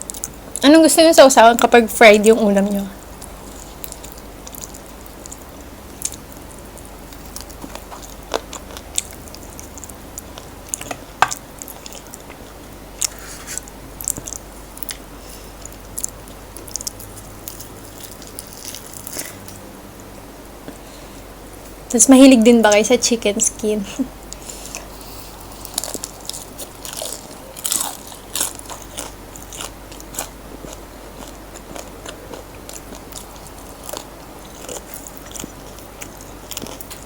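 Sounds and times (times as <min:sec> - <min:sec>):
chewing fried chicken: 0:03.0 - 0:19.6, 0:24.2 - 0:37.0.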